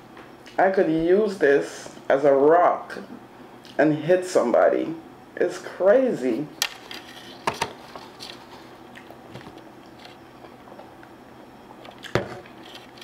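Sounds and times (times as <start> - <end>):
person chewing: 8.8 - 9.2.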